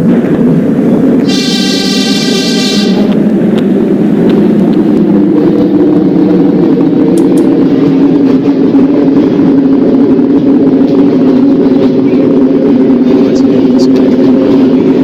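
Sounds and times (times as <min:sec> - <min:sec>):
subway train rumbling on track: 0:00.0 - 0:15.0
sharp track clicks: 0:06.7 - 0:08.5.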